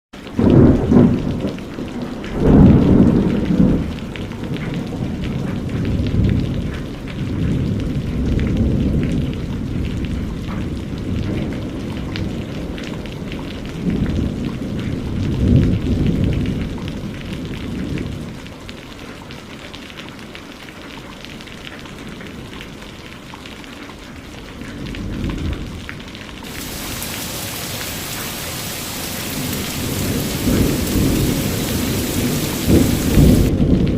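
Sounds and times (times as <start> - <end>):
steady rain: 0.2 - 33.9
low rolls of thunder: 0.4 - 12.7, 26.4 - 33.9.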